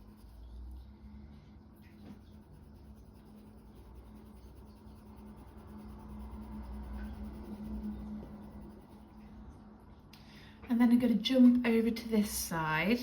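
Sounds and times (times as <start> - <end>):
pencil scratching on paper: 0.0 - 0.8, 2.1 - 9.6.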